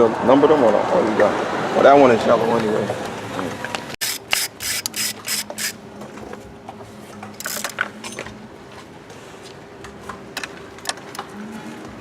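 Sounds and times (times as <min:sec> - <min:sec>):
hand tools clicking and rattling: 0:04.0 - 0:05.8.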